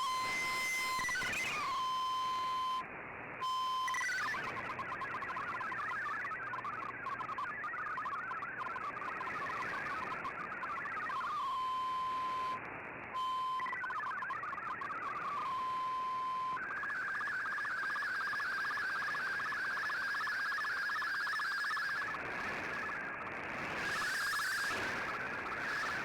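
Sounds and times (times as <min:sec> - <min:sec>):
stepping data tones: 0:03.6 - 0:12.6, 0:13.2 - 0:26.0
steady beep-like tone: 0:13.2 - 0:22.2.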